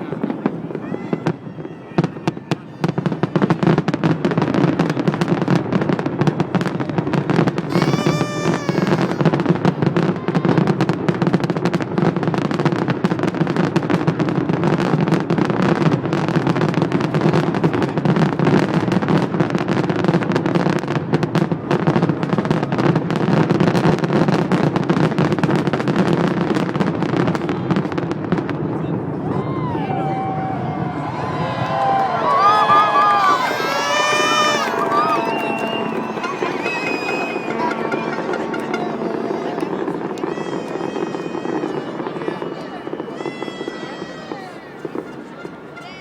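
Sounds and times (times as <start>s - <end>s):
fireworks bangs and crackles: 0.1s - 29.4s, 30.6s - 45.7s
wavering firework whistle: 7.7s - 9.4s, 29.8s - 44.3s.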